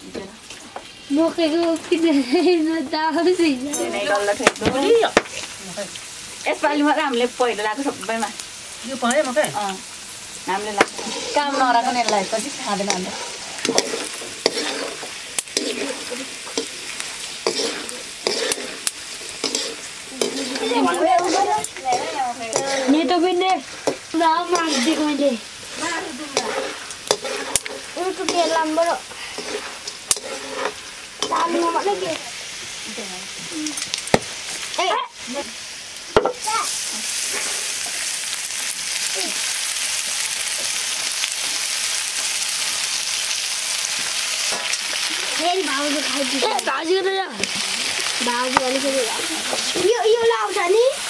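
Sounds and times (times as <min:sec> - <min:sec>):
chicken sizzling in oil: 0:00.0 - 0:51.0
spatula scraping a metal wok: 0:10.4 - 0:32.2, 0:36.8 - 0:38.1, 0:44.1 - 0:46.6.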